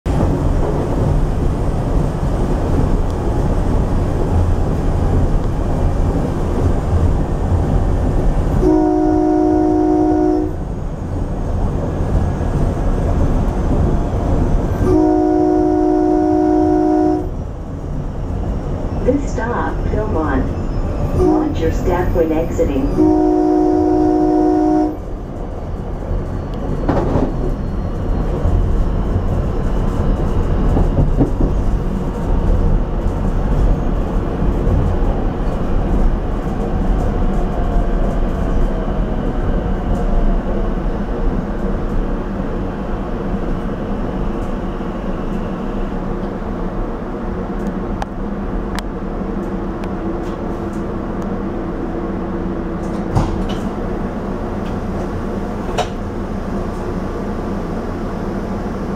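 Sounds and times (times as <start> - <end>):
wheels rumbling on rail: 0.0 - 58.9
sharp clunk: 53.1 - 53.7.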